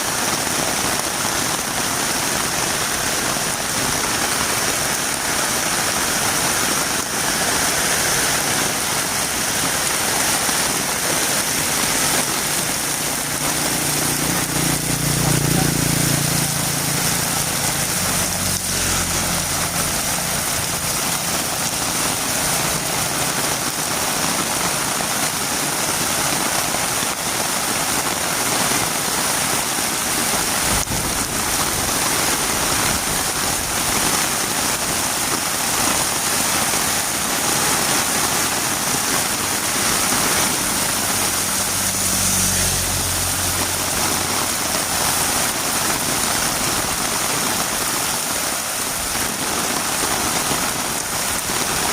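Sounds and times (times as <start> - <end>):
heavy rain on a road: 0.0 - 51.9.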